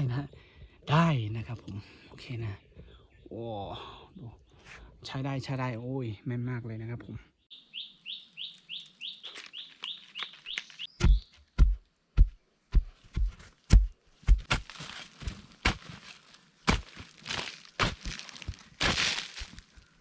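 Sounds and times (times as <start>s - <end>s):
bird chirping: 6.9s - 11.8s.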